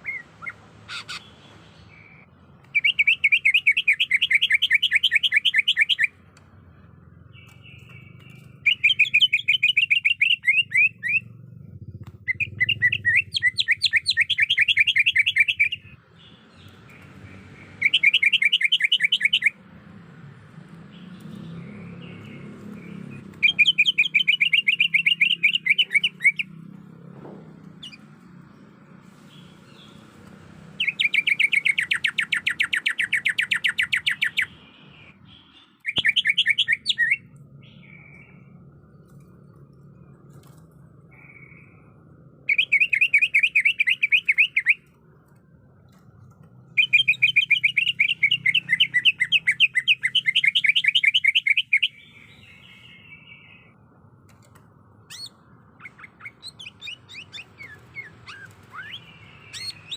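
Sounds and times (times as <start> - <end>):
bird chattering calls: 0.0 - 2.2, 7.4 - 15.9, 22.0 - 26.6, 30.8 - 38.4, 55.1 - 59.9.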